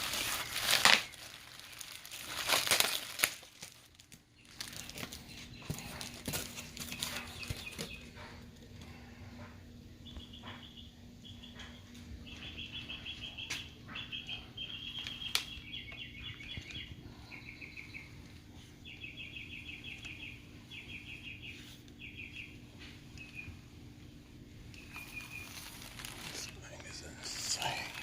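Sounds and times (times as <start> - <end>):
rapid high chirping trills: 24.8 - 28.0.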